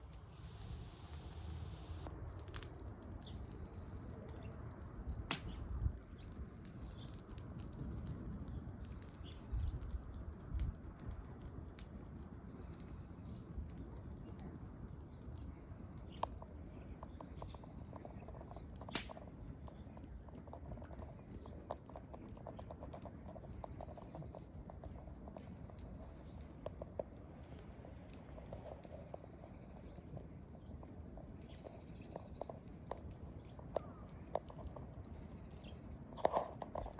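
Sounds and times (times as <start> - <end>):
wind rumble on microphone: 0.0 - 36.9
wood fire crackling: 0.0 - 36.9
loud sharp pops: 18.8 - 19.2.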